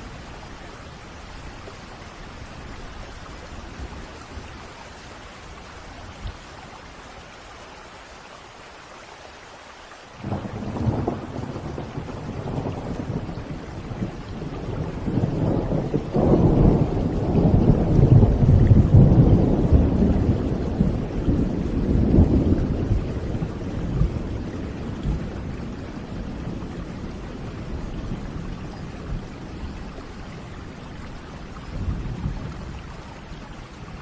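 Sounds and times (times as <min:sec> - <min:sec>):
steady rain: 0:00.0 - 0:34.0
thunder crack and rumble: 0:10.2 - 0:30.0, 0:30.6 - 0:32.8.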